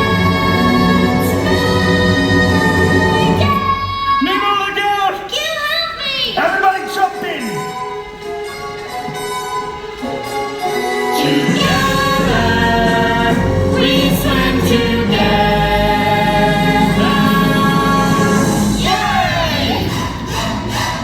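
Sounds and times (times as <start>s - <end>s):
backing music: 0.0s - 4.6s, 6.4s - 21.0s
voices singing held notes: 0.0s - 5.2s, 6.3s - 21.0s
bass line: 11.6s - 20.1s.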